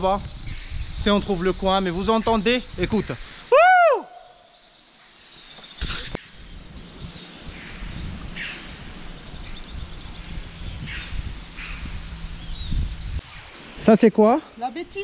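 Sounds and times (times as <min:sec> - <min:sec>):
birds calling sharply: 0:00.0 - 0:13.8
steady low rumble: 0:06.2 - 0:13.2.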